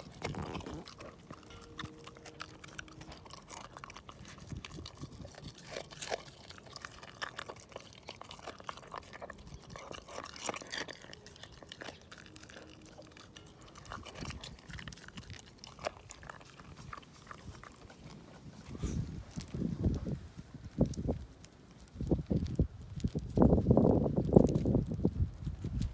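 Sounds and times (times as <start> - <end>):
dog crunching bones: 0.0 - 20.0
dog wet chewing: 0.0 - 23.4.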